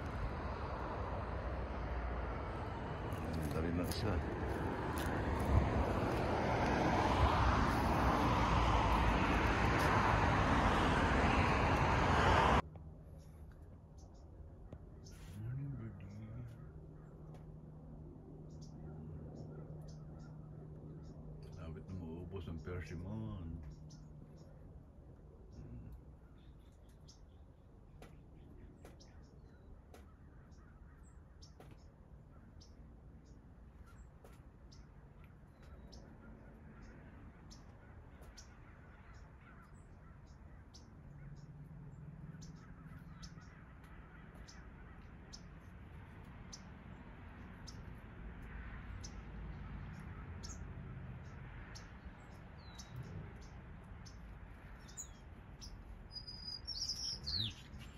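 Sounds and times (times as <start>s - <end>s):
bird cawing: 29.9s - 32.7s, 35.1s - 41.5s, 42.2s - 45.6s.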